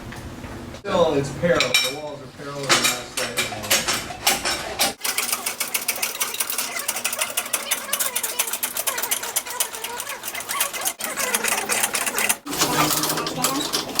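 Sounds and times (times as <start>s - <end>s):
rapid mechanical clicking: 3.2s - 14.0s.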